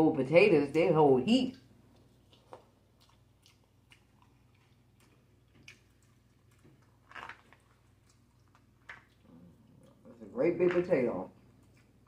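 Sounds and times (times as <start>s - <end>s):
faint chewing: 1.4s - 10.4s, 11.3s - 12.0s
wet mouth clicks and smacks: 1.9s - 9.2s.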